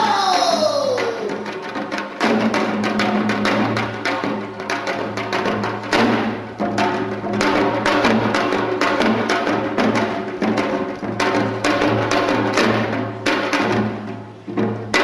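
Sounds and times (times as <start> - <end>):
hourglass drum strokes: 0.0 - 2.0.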